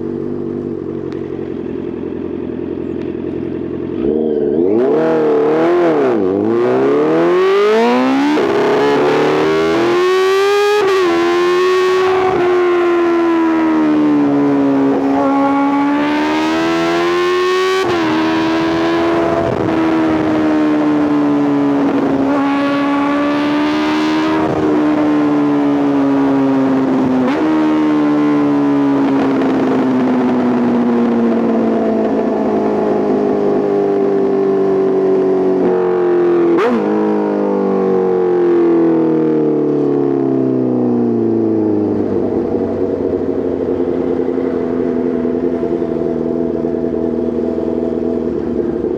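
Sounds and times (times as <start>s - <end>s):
motorcycle engine accelerating: 0.0s - 48.9s
motorcycle engine blip: 0.5s - 4.8s.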